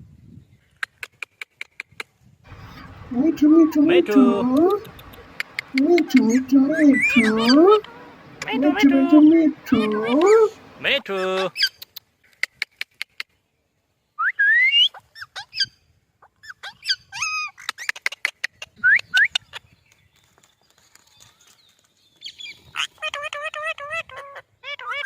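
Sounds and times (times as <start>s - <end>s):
parrot clicking: 2.5s - 8.9s
parrot whistling: 2.5s - 10.8s
parrot squawking: 2.5s - 11.7s.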